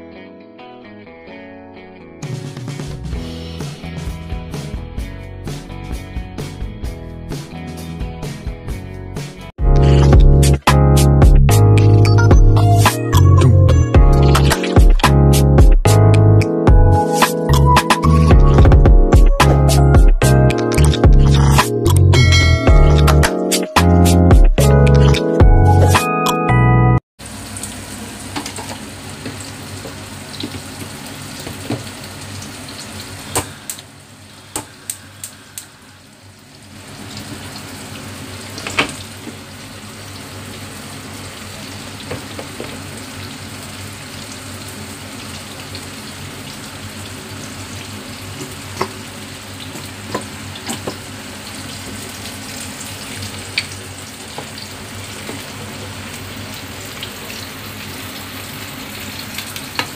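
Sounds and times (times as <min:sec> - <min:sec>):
ribs sizzling in a pan: 0:36.8 - 0:59.9.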